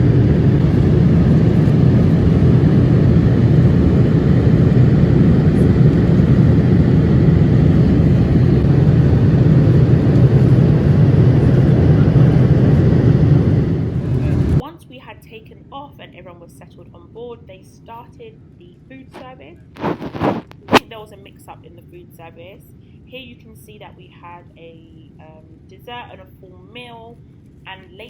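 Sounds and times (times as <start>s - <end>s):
airliner cabin engine roar: 0.0s - 14.6s, 18.9s - 21.6s.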